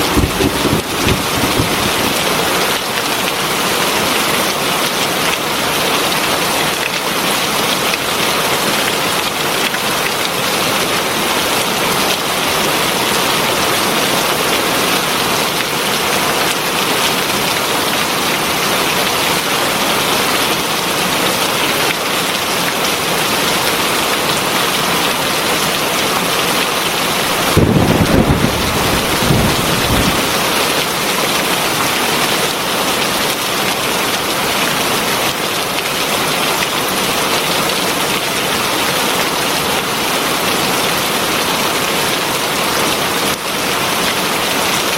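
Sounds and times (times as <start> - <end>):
low rumble of thunder: 0.0 - 2.7, 27.4 - 30.5
heavy rain falling: 0.0 - 44.9.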